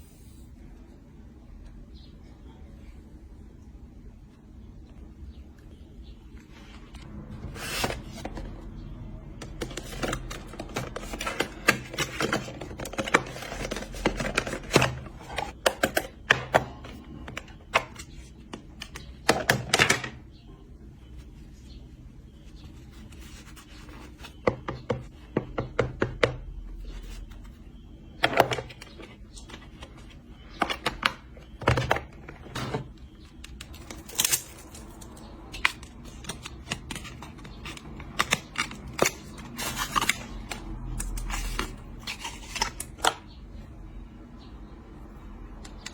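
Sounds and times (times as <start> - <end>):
hands opening packaging: 33.3 - 43.2.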